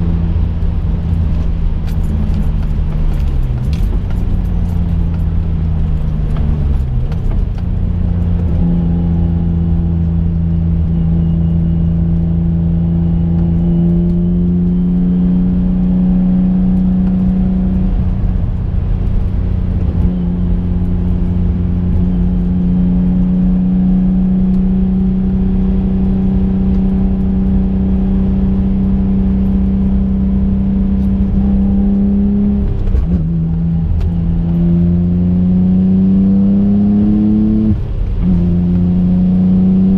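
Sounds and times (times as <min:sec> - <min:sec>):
car engine droning: 0:00.0 - 0:39.9.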